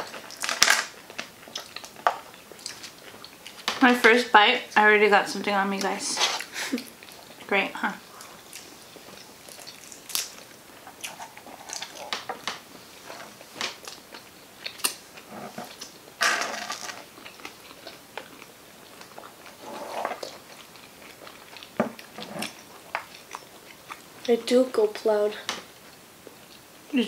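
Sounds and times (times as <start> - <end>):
person chewing food: 0.0 - 3.8, 6.3 - 16.2, 16.8 - 24.3.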